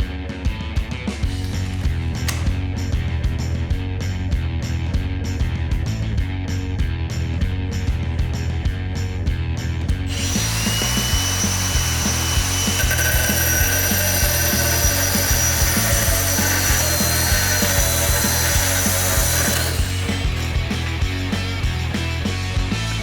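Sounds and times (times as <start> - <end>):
angle grinder drilling into tile: 10.1 - 22.2
background music with steady beat: 17.4 - 23.0.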